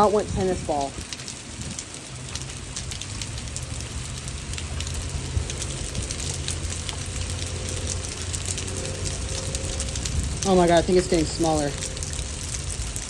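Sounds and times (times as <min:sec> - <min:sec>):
hailstones clicking on hard surfaces: 0:00.0 - 0:13.0
low steady hum: 0:00.0 - 0:13.0
rain hissing: 0:00.0 - 0:13.0.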